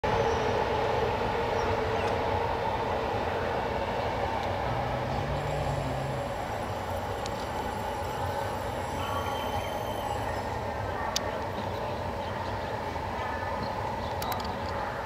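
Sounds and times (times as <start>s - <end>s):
train rolling rumble: 0.0s - 15.0s
sustained ringing tones: 4.8s - 11.1s.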